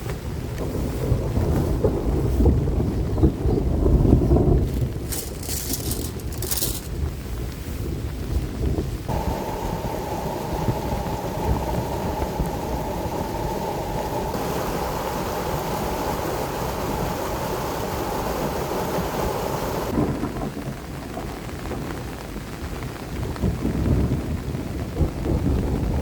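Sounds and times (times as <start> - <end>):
low rumbling gusts: 0.0 - 26.0
heavy rain falling: 7.9 - 26.0.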